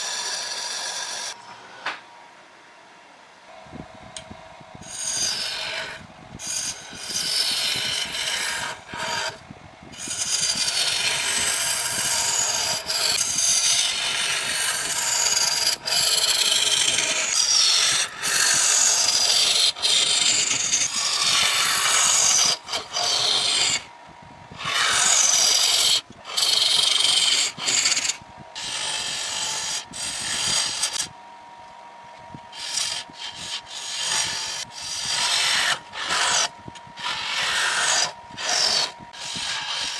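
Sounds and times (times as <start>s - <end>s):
lathe tool cutting wood: 4.9s - 9.4s, 10.0s - 23.9s, 24.6s - 31.0s, 32.6s - 39.9s.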